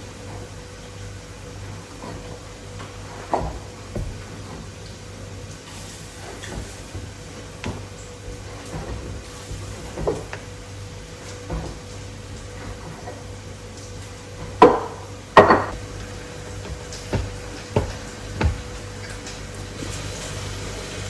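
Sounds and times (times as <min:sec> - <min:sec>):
steady low hum: 0:00.0 - 0:19.8
objects knocking and clunking: 0:02.1 - 0:05.0, 0:14.4 - 0:19.5.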